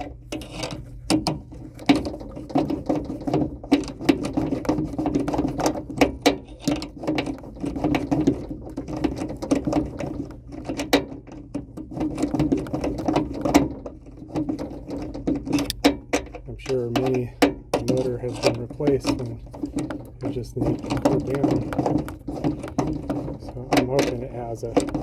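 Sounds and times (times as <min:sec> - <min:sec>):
steady low hum: 0:00.0 - 0:25.0
hand tool ratcheting: 0:14.3 - 0:25.0.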